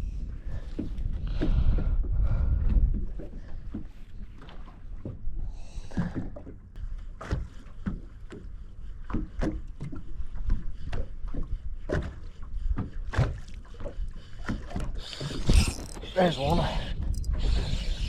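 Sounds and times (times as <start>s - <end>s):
low rumble of wind and waves: 0.0s - 18.0s
water slapping against boat hull: 7.2s - 16.4s.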